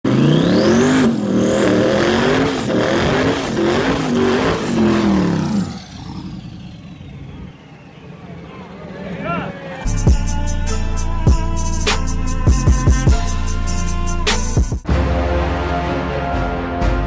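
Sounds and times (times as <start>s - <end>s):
car engine at high revs: 0.0s - 9.9s
high rising whines: 0.2s - 14.6s.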